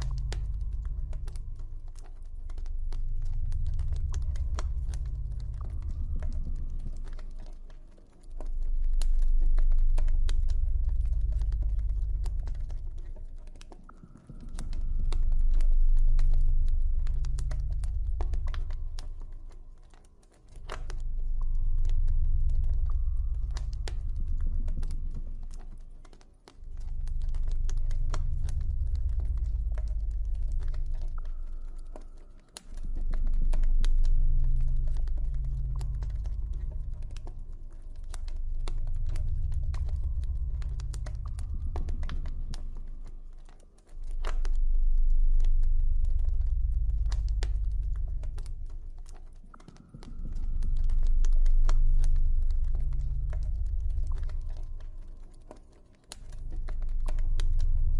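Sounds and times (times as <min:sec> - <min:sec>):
deep low ambient drone: 0:00.0 - 0:57.9
campfire crackling and popping: 0:17.8 - 0:57.9.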